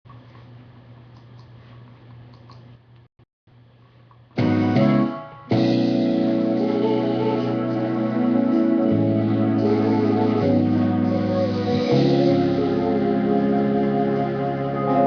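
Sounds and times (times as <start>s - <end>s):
organ and piano music: 4.4s - 15.0s.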